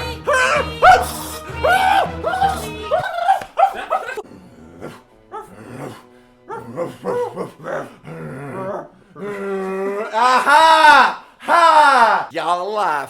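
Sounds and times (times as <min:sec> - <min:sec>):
man making wordless vocal noises: 0:00.2 - 0:05.0.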